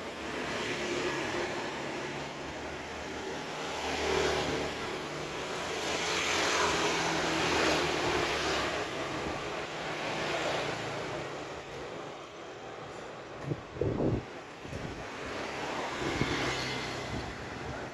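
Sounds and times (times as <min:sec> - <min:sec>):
traffic passing: 0:00.0 - 0:17.9.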